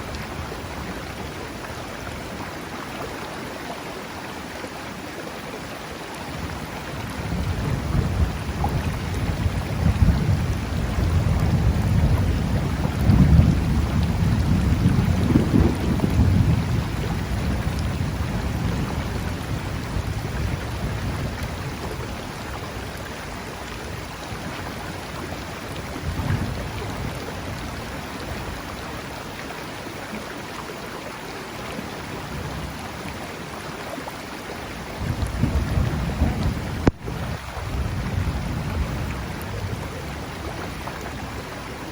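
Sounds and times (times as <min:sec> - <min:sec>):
rain over river: 0:00.0 - 0:41.9
thunder rumbling: 0:07.2 - 0:22.9, 0:35.0 - 0:41.5.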